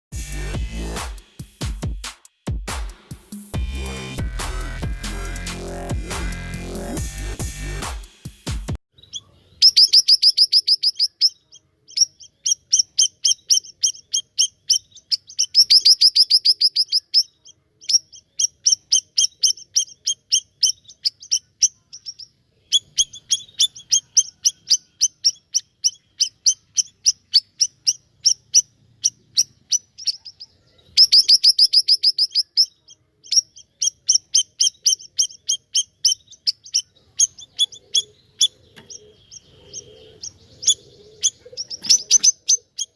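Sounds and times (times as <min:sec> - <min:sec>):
songbird singing: 0:08.8 - 0:42.9.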